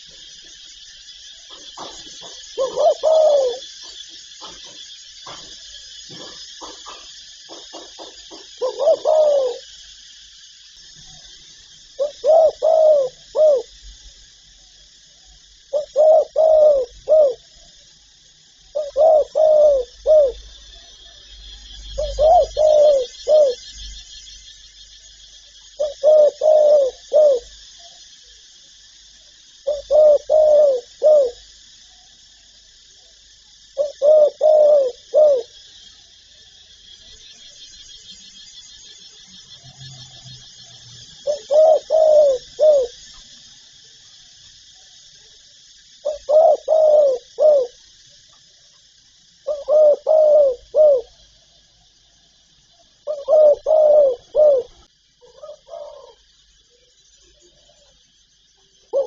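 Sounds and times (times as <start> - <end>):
dove cooing: 1.5 - 5.5, 6.1 - 9.8, 12.0 - 13.8, 15.7 - 17.5, 18.7 - 20.7, 21.8 - 23.7, 25.8 - 27.5, 29.6 - 31.4, 33.8 - 35.6, 41.1 - 43.0, 46.0 - 47.8, 49.4 - 51.2, 53.0 - 56.3, 58.8 - 59.0
faint high hiss: 8.1 - 39.7, 40.6 - 59.0.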